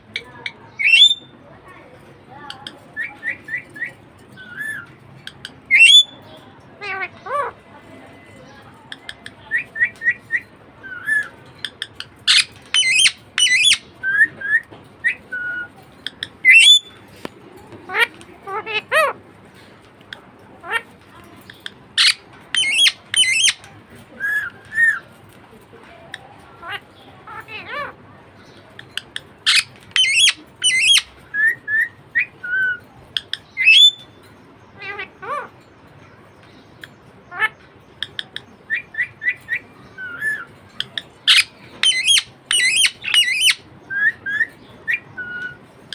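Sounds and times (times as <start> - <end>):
budgerigar chirping and warbling: 0.7 - 1.3, 3.0 - 6.2, 9.0 - 17.0, 20.6 - 25.0, 26.6 - 34.2, 36.8 - 45.9.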